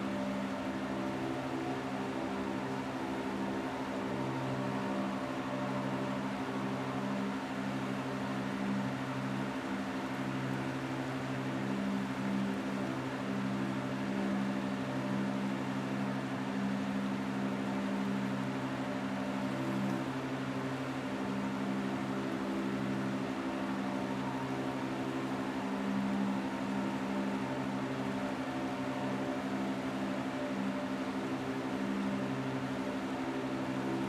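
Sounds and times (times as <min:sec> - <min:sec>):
low mechanical hum: 0:00.0 - 0:34.0
steady rain hiss: 0:00.0 - 0:34.0.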